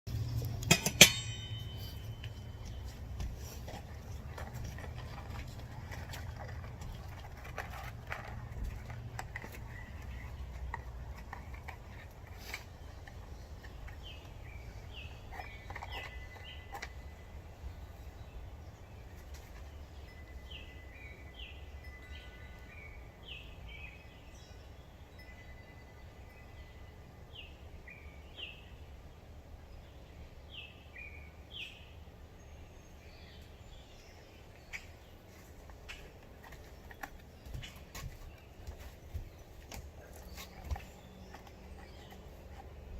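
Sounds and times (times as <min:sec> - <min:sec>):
bird chirping: 0:00.1 - 0:29.0, 0:29.7 - 0:42.9.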